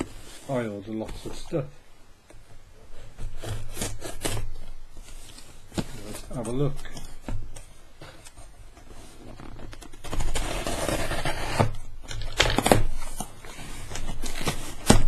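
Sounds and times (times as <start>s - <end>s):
packaging scraped and torn: 3.1s - 7.2s, 8.9s - 15.0s.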